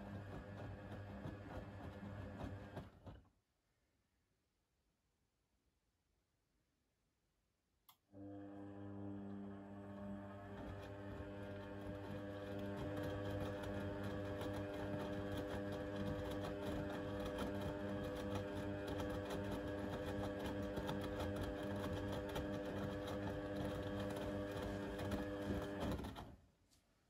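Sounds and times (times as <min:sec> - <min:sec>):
washing machine running: 0:00.0 - 0:03.2, 0:08.2 - 0:26.3.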